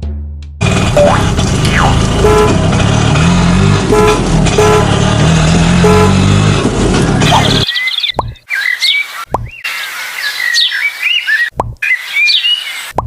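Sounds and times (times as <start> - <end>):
engine droning: 0.6 - 7.7
car horn tooting: 1.7 - 2.8, 3.8 - 5.1, 5.7 - 6.5.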